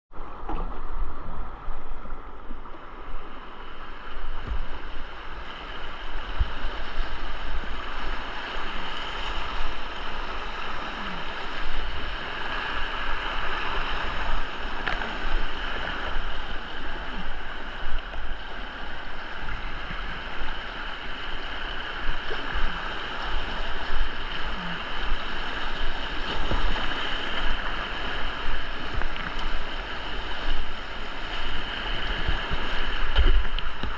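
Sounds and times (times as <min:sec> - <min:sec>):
whitewater rushing: 0:00.2 - 0:33.9.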